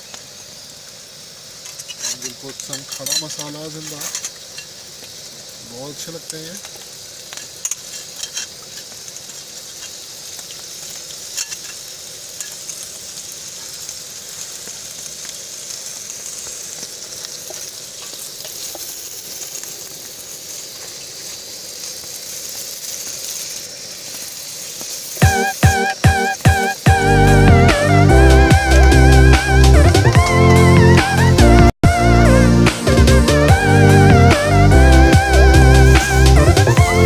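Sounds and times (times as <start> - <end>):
spices sizzling in hot oil: 0.0 - 37.0
music with a beat: 25.2 - 37.0.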